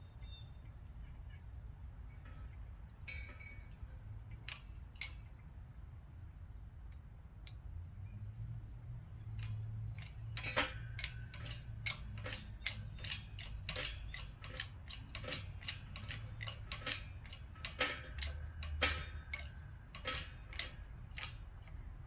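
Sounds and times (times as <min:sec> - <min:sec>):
metallic clicks and taps: 0:02.2 - 0:05.5, 0:06.9 - 0:07.6, 0:09.2 - 0:21.8.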